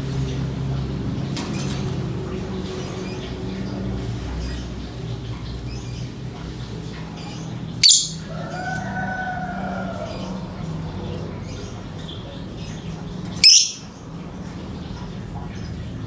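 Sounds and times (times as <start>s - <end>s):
faint chirping: 7.2s - 14.0s
bird call arching up and down: 7.8s - 8.3s.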